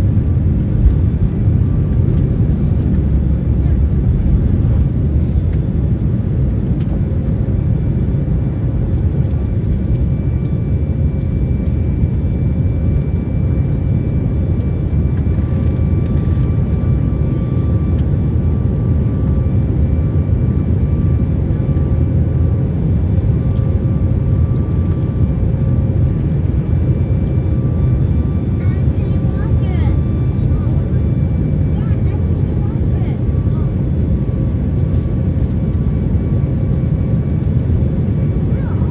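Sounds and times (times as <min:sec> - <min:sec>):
jet engine rumble: 0:00.0 - 0:38.9.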